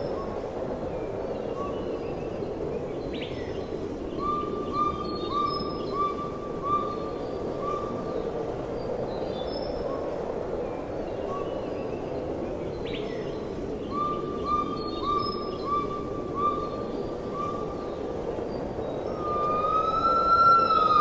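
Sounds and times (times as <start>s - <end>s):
rainforest background hiss: 0.0s - 21.0s
faint high bird chirps: 19.1s - 21.0s
bird calling repeated notes: 19.2s - 21.0s.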